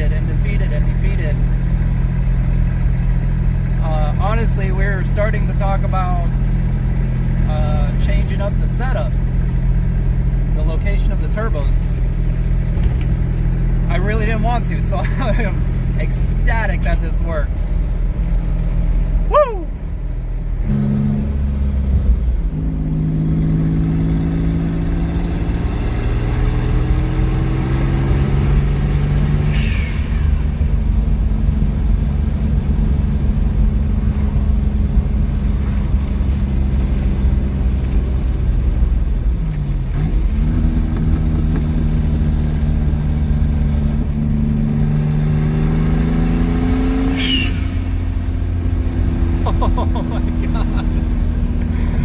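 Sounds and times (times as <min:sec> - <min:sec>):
car engine under load: 0:00.0 - 0:52.0
high falling turbo whistle: 0:19.3 - 0:19.8, 0:47.0 - 0:48.2.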